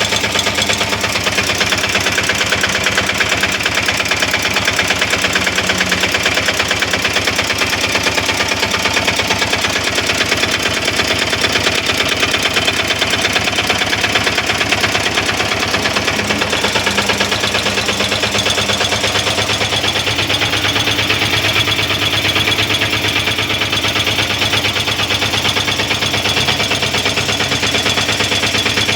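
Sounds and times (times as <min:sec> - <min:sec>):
diesel engine clattering: 0:00.0 - 0:28.9.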